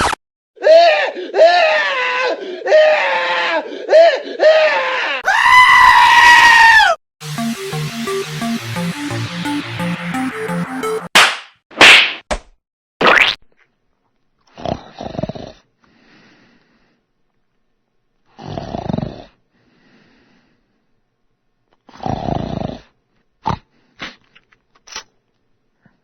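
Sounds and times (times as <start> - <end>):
soft out-breath: 15.8 - 17.1, 19.5 - 20.8.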